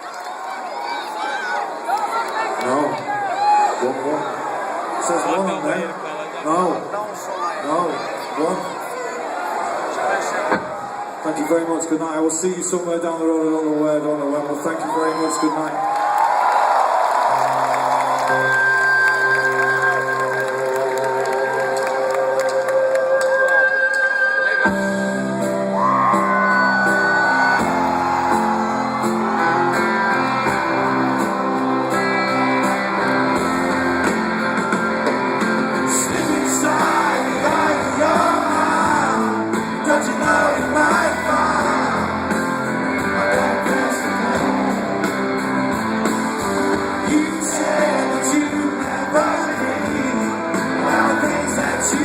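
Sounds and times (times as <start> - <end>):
crowd singing and shouting along: 18.0 - 52.0
live rock band playing: 23.3 - 52.0.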